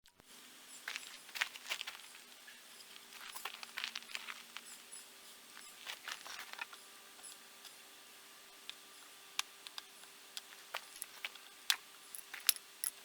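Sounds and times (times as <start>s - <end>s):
faint steady hum: 0.1s - 13.0s
small objects clicking and scraping: 0.8s - 4.8s, 5.6s - 7.8s, 9.4s - 13.0s.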